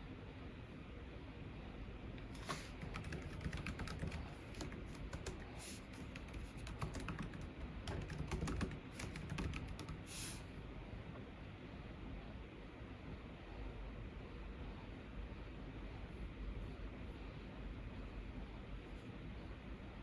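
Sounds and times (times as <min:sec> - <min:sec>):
keyboard typing: 0:02.2 - 0:10.4.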